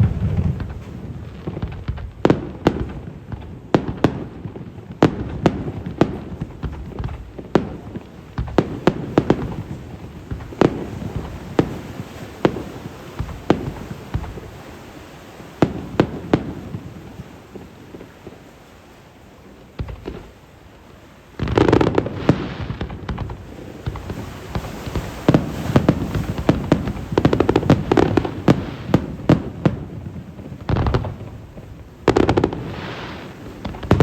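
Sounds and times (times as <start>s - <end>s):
rumbling echo: 0.0s - 1.3s
fireworks bursting: 0.0s - 34.0s.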